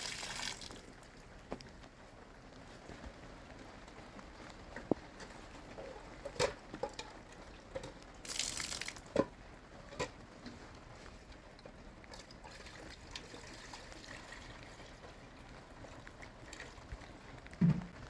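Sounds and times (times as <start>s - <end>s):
water trickling: 0.0s - 1.2s, 8.2s - 9.1s, 12.1s - 17.9s
sharp clicks and knocks: 17.6s - 18.0s.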